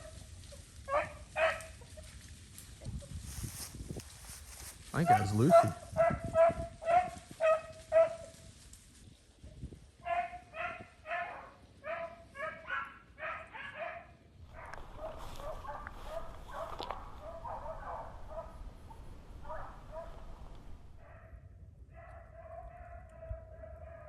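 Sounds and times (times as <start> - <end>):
dogs baying: 0.9 - 1.9, 5.0 - 8.3, 10.0 - 21.4, 22.0 - 24.0.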